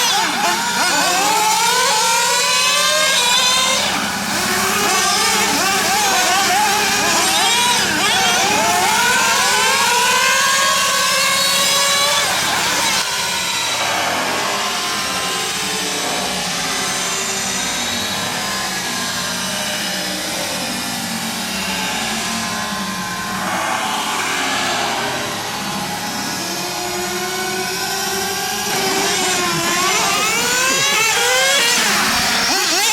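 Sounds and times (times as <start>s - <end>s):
rc car nitro engines revving: 0.0s - 32.9s
buzzing whine: 12.2s - 32.9s.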